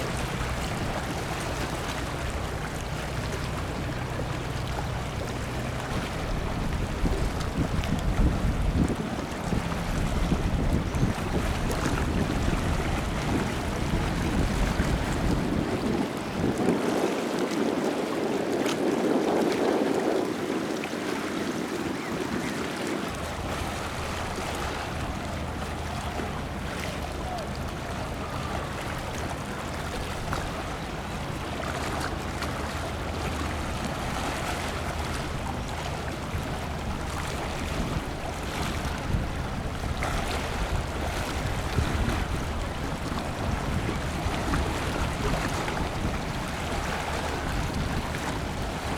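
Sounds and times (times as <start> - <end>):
sea waves: 0.0 - 48.9
wind: 0.0 - 48.9.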